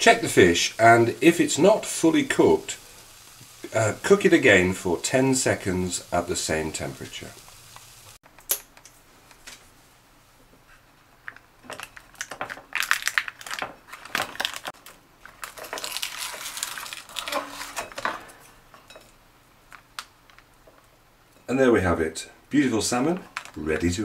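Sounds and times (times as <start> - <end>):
paper tray crinkling: 11.8 - 18.1, 23.1 - 24.0.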